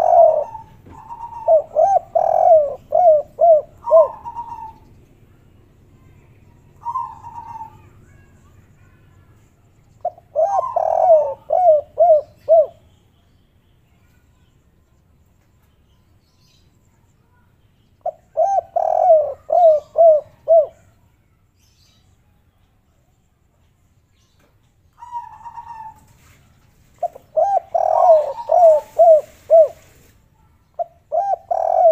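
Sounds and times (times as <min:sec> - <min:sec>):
dove cooing: 0:00.0 - 0:05.0, 0:06.8 - 0:08.2, 0:10.0 - 0:12.8, 0:18.0 - 0:20.9, 0:25.0 - 0:26.4, 0:27.0 - 0:30.1, 0:30.8 - 0:31.9.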